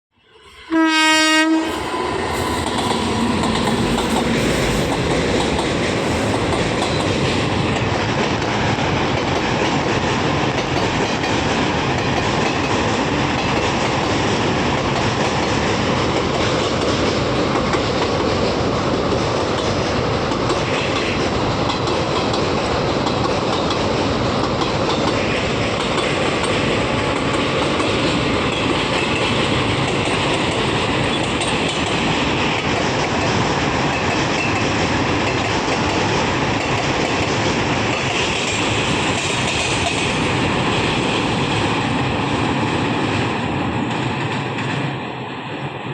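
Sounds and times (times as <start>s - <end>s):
train horn blast: 0.2s - 4.8s
train rumble: 0.2s - 45.9s.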